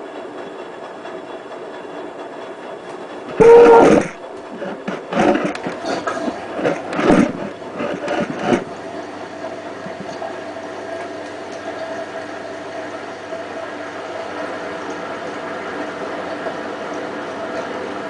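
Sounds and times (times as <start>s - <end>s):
washing machine humming: 0.0s - 18.0s.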